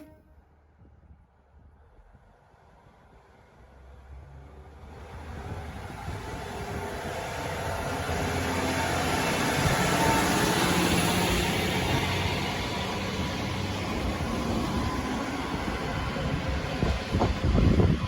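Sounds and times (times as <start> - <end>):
faint drawn-out tones: 0.0 - 0.4
diesel railcar engine rumble: 0.0 - 18.0.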